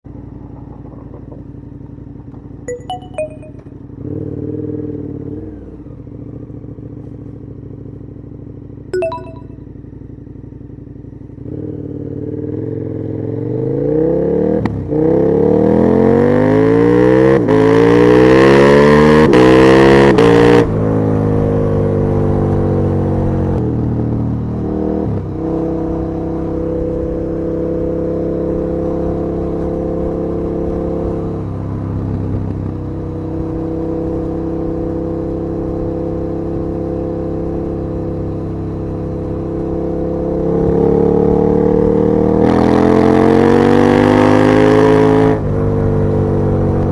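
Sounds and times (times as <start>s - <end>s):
motorcycle engine revving: 10.6s - 46.9s.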